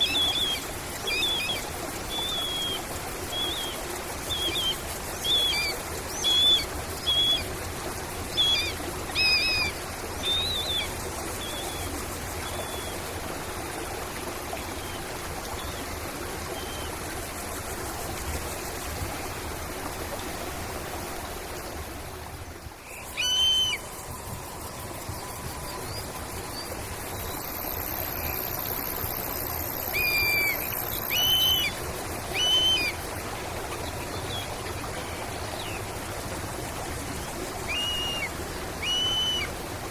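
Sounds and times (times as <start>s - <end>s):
bird calls: 0.0s - 7.5s, 22.8s - 33.0s, 37.6s - 39.5s
running water: 0.0s - 39.9s.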